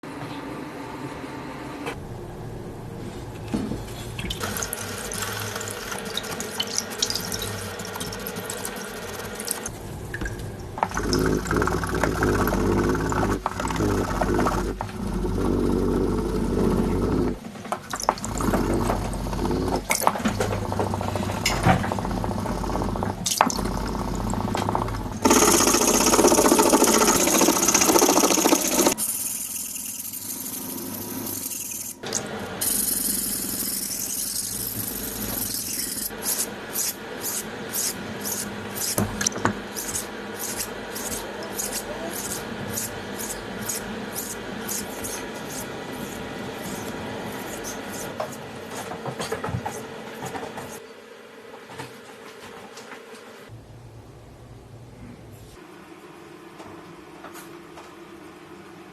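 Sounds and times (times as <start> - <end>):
knife blade scraping and grinding: 39.8 - 48.2
back-and-forth sharpening strokes: 39.8 - 48.4.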